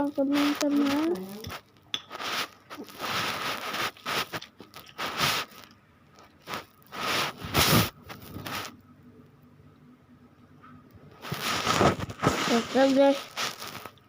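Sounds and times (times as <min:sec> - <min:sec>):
person chewing and eating: 0:01.2 - 0:08.7.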